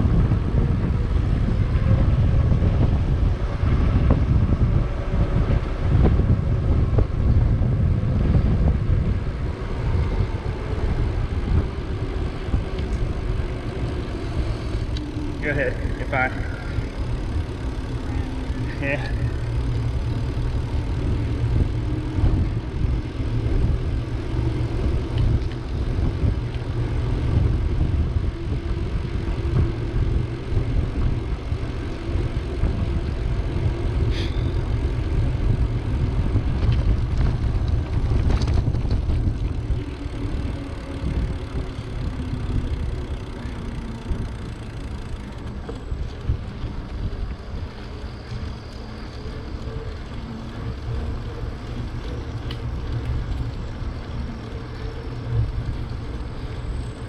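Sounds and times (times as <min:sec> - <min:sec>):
wind rumbling on microphone: 0:00.0 - 0:57.0.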